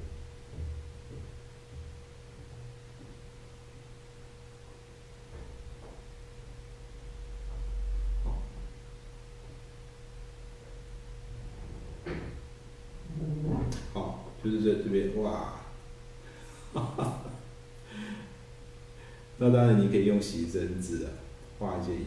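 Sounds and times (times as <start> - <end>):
electrical hum with pure tone: 0.0 - 22.0
low rumble: 11.2 - 12.3.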